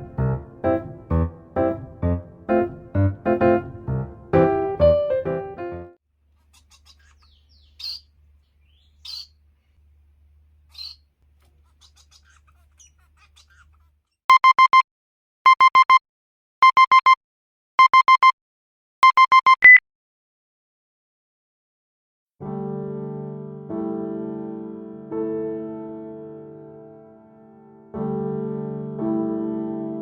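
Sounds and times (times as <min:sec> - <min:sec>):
faint bird chirps: 0:06.4 - 0:10.0, 0:10.7 - 0:13.9.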